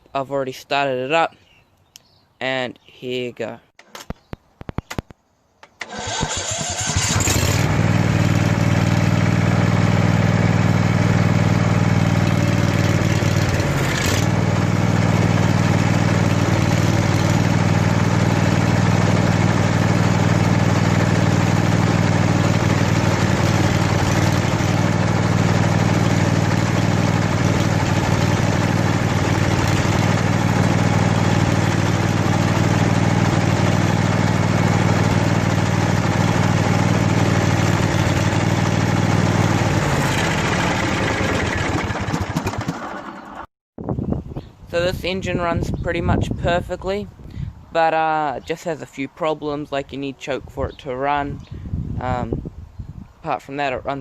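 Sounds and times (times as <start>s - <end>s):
mower engine running: 5.8s - 43.5s.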